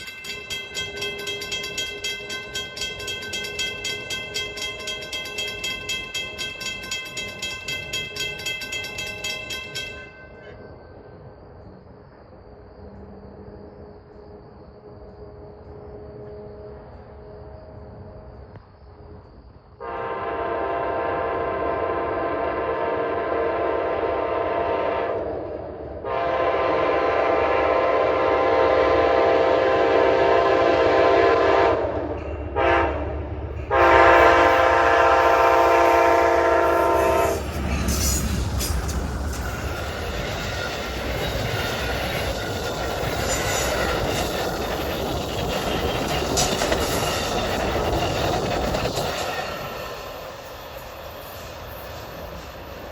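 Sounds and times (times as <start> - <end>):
wheels clattering on rails: 0.0 - 10.7, 33.2 - 52.9
train rumbling past: 0.0 - 52.9
locomotive horn blasts: 19.8 - 25.2, 26.0 - 32.0, 32.6 - 37.4.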